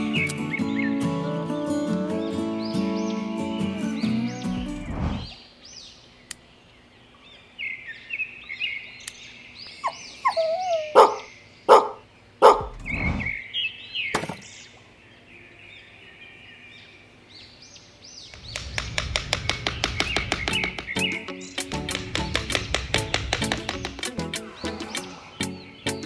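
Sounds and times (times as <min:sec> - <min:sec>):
birds chirping: 0:00.0 - 0:26.0
sticks knocking on wood: 0:18.3 - 0:24.5
music with steady beat: 0:19.9 - 0:26.0.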